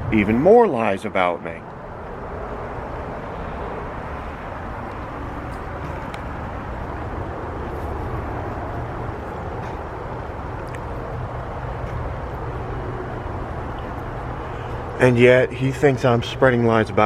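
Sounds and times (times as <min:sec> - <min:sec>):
wind rushing over microphone: 0:00.0 - 0:16.5.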